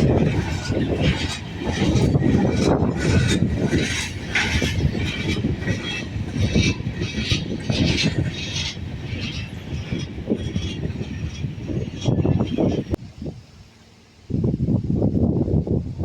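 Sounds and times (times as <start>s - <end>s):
freight wheels clattering on track: 0.0s - 13.0s
faint wheel squeal: 0.2s - 13.0s.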